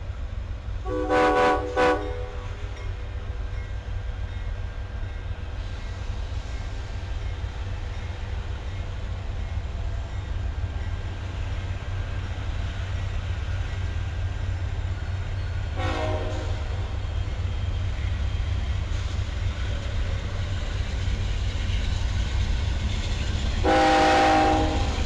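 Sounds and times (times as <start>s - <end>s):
train idling rumble and hum: 0.0s - 25.0s.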